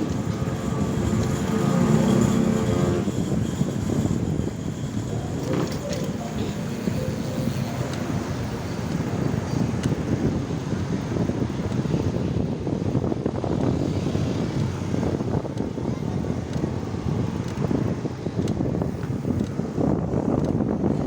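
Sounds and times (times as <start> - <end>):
road and traffic noise: 0.0 - 21.0
wind buffeting microphone: 0.0 - 21.0.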